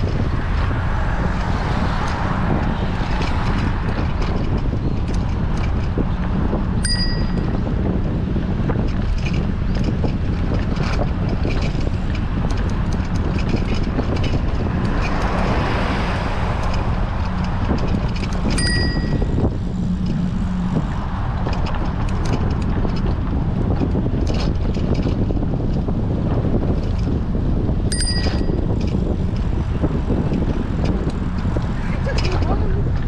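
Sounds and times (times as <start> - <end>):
wind buffeting microphone: 0.0 - 33.0
bicycle bell ding: 6.8 - 7.5, 18.5 - 19.3, 27.9 - 28.6.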